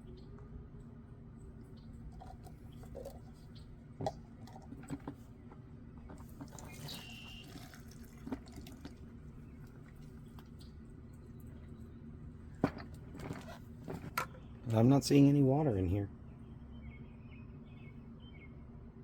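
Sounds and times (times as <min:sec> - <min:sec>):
liquid trickling: 0:02.1 - 0:05.2, 0:06.2 - 0:10.6.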